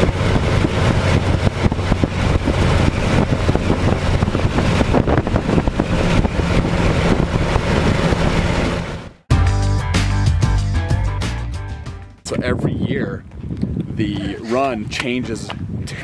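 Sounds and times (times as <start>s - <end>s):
wind buffeting microphone: 0.0s - 9.2s, 12.3s - 16.0s
car engine running: 0.0s - 9.3s.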